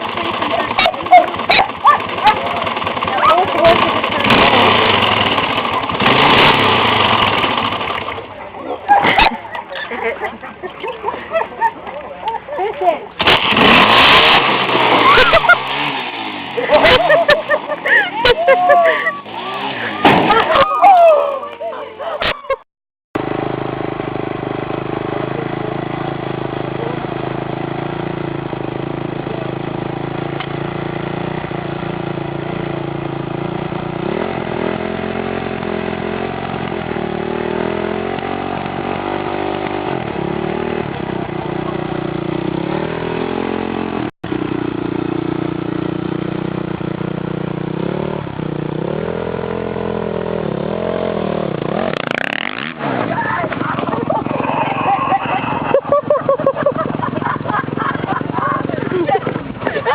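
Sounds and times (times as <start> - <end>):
small vehicle engine revving: 0.0 - 11.4, 13.1 - 22.2, 23.2 - 59.9.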